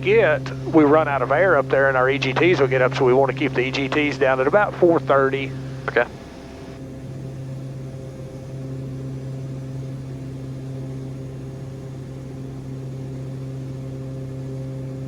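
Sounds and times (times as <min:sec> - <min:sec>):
turboprop cabin drone: 0:00.0 - 0:15.0.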